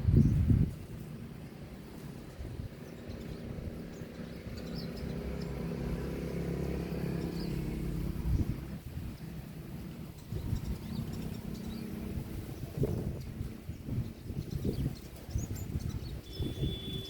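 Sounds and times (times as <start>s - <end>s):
vehicle engine hum: 0.0s - 17.0s
faint high bird chirps: 14.1s - 17.0s.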